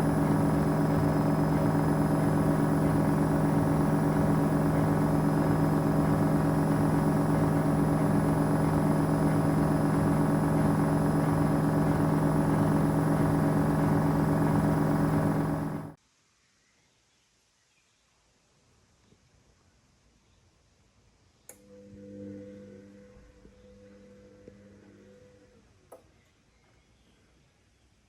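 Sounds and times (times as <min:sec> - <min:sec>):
washing machine motor humming: 0:00.0 - 0:16.0.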